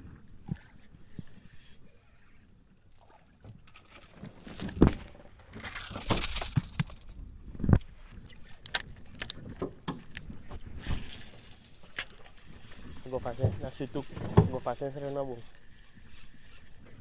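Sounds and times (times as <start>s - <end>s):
knocks and thumps in a boat: 9.3s - 10.8s, 12.5s - 14.9s.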